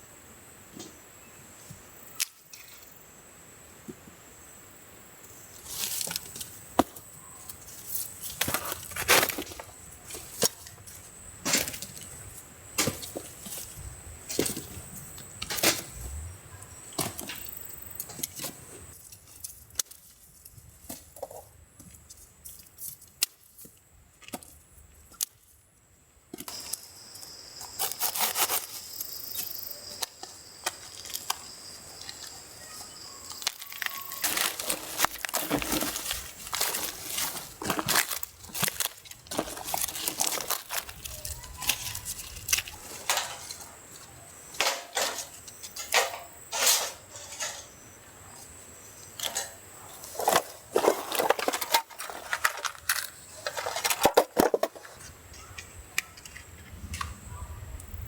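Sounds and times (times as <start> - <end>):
wooden branches knocking and cracking: 7.7 - 12.2, 12.8 - 16.0, 16.9 - 25.4, 33.3 - 47.7.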